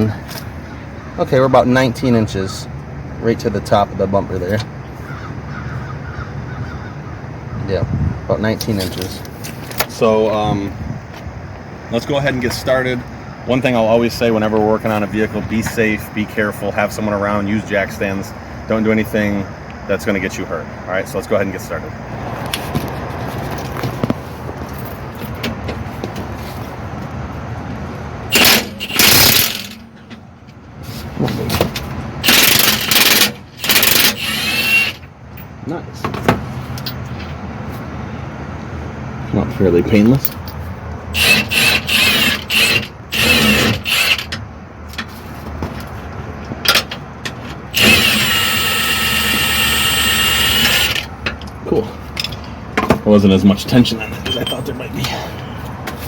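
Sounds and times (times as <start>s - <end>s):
steady background noise: 0.0s - 56.0s
impact wrench bursts: 28.3s - 29.9s, 32.2s - 35.1s, 41.2s - 44.4s, 47.7s - 51.2s.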